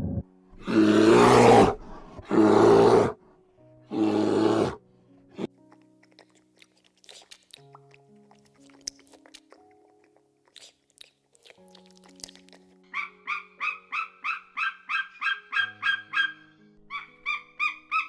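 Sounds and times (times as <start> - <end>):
harsh animal calls: 0.6 - 3.2, 3.9 - 4.8.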